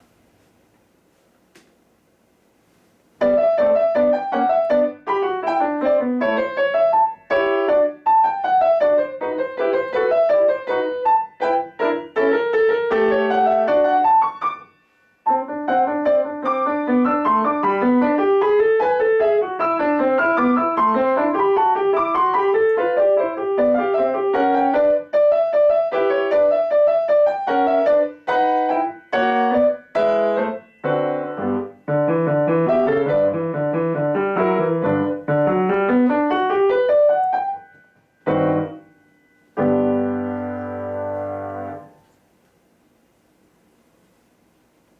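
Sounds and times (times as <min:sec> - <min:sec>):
classical piano piece: 0:03.2 - 0:42.1.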